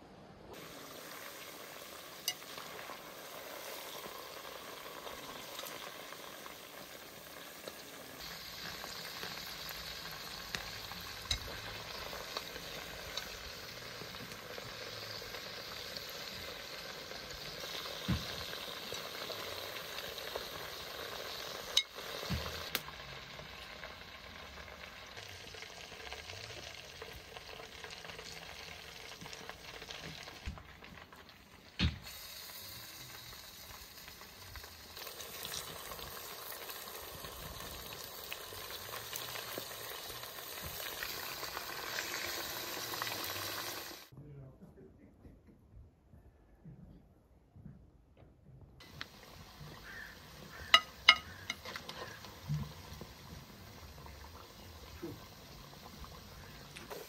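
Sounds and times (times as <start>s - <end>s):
food sizzling: 0.5s - 44.1s, 48.8s - 57.0s.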